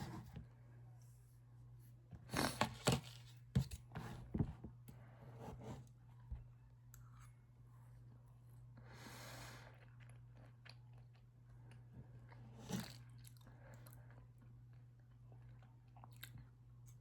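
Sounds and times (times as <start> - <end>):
low electrical hum: 0.0 - 17.0
chewing soft food: 9.4 - 17.0.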